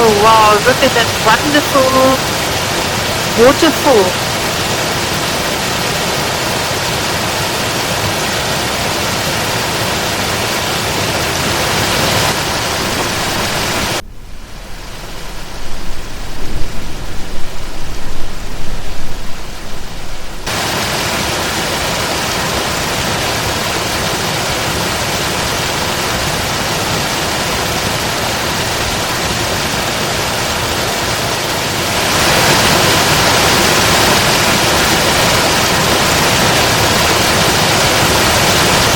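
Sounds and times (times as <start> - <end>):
rushing waterfall: 0.0 - 38.9
muffled low rumble: 12.2 - 20.5.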